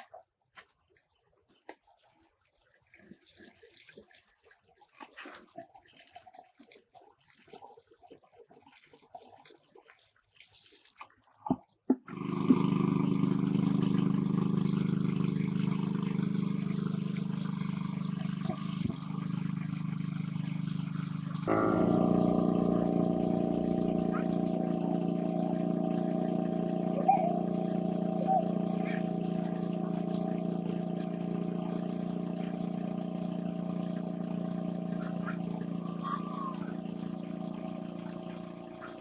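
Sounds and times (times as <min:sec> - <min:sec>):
motor-like drone: 0:12.1 - 0:39.0
thin high steady tone: 0:12.6 - 0:39.0.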